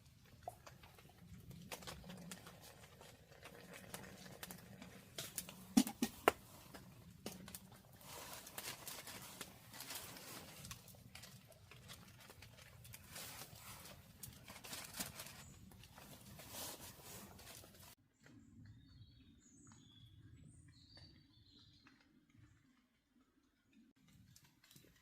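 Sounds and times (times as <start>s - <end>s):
crackling taps and patters: 0.2s - 16.5s
small birds chirping: 18.1s - 22.8s.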